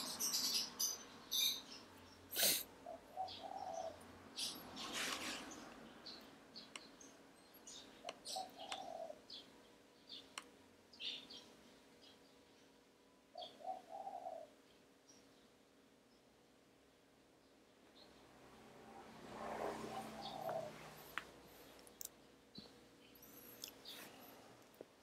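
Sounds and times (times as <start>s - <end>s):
faint bird chirps: 0.0s - 16.4s
low cooing bird call: 2.4s - 4.1s, 7.7s - 9.4s, 13.3s - 14.6s, 19.7s - 21.2s.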